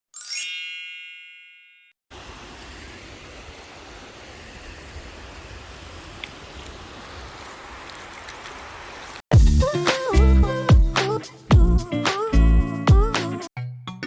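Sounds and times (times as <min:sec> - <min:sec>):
bright chime ringing: 0:00.1 - 0:02.0.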